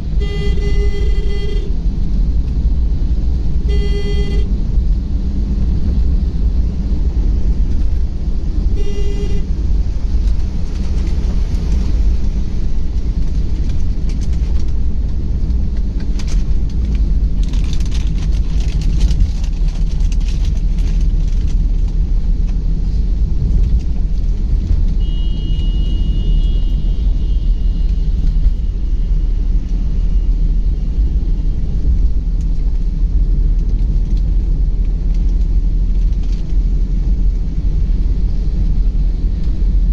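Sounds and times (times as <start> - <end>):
car road rumble: 0.0 - 39.9
car horn toot: 0.2 - 1.7, 3.7 - 4.5, 8.7 - 9.5, 25.0 - 28.0.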